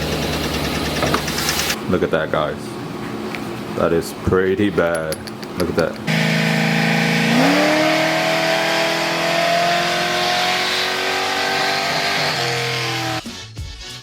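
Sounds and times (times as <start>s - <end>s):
vehicle engine revving: 6.1s - 13.2s.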